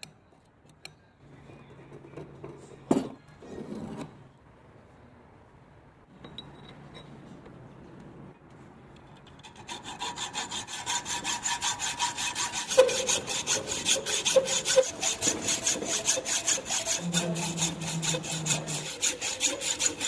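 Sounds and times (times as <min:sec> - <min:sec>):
faint metallic ring: 0:06.2 - 0:07.3
hacksaw rasping on metal: 0:09.4 - 0:20.0.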